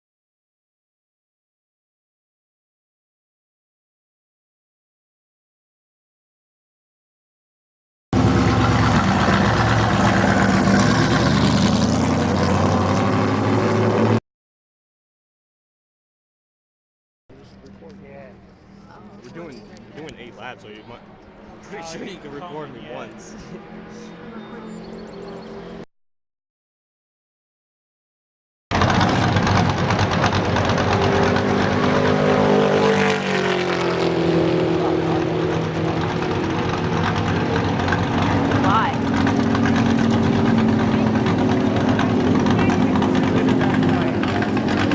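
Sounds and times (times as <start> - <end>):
stock car engine running: 8.2 - 14.2, 28.7 - 44.9.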